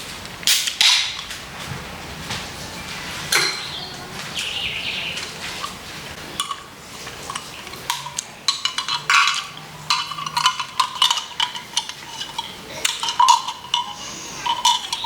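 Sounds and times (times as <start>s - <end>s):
utensils and food containers clicking: 6.4s - 15.0s.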